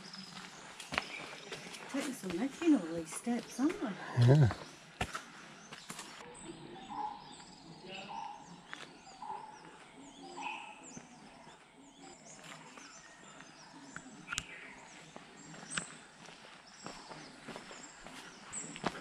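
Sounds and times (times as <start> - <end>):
footsteps on a path: 0.0 - 6.2, 10.8 - 19.0
birds chirping: 0.0 - 19.0.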